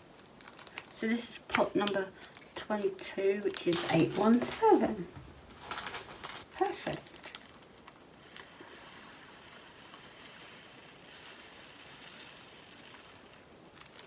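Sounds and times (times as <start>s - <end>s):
beads pouring into plastic pot: 8.5s - 14.0s.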